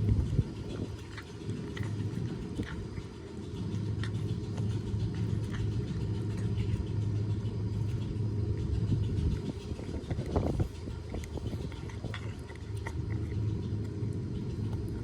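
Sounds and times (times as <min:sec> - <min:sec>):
cat chewing bone: 0:00.0 - 0:15.0
low rumble: 0:00.0 - 0:15.0.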